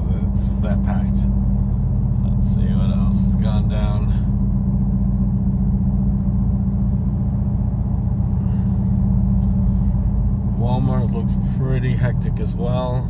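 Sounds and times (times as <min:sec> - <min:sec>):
car interior engine and road noise: 0:00.0 - 0:13.0.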